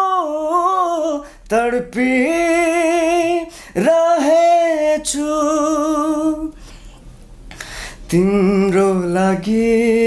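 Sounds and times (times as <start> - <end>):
man singing unaccompanied: 0.0 - 6.6, 8.0 - 10.0
man breathing: 1.2 - 1.5, 3.4 - 3.8, 6.5 - 8.1.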